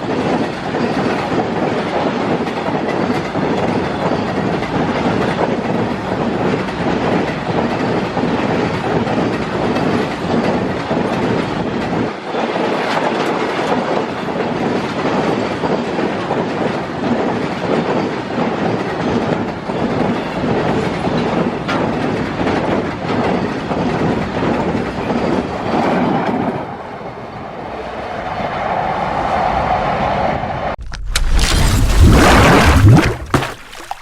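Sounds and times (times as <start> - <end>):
freight train wheels clattering: 0.0 - 26.7.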